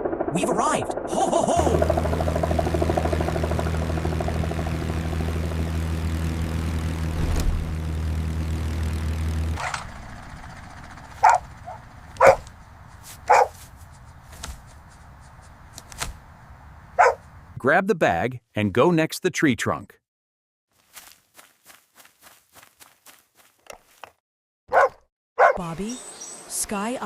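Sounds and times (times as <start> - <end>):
cartoon plane engine droning: 0.0 - 12.6
dog barking: 11.2 - 12.5, 13.3 - 13.6, 17.0 - 17.3, 24.7 - 25.6.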